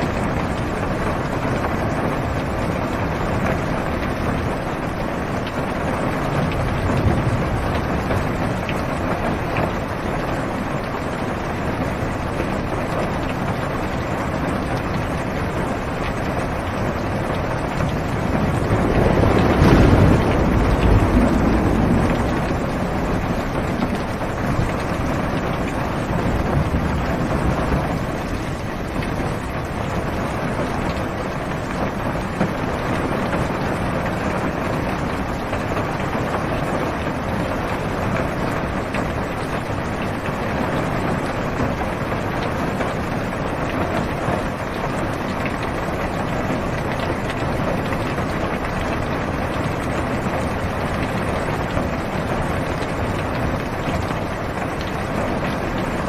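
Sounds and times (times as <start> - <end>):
heavy rain on car roof: 0.0 - 56.0
low rumble: 17.3 - 28.8.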